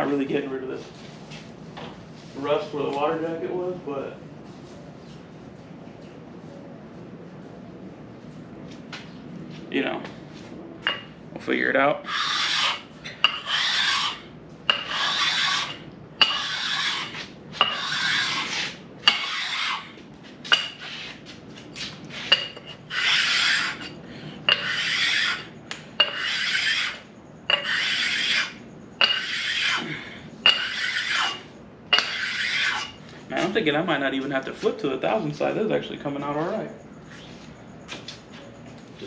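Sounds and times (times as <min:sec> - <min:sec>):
sharpening stone rasping on iron: 0:12.0 - 0:21.2, 0:22.1 - 0:33.0.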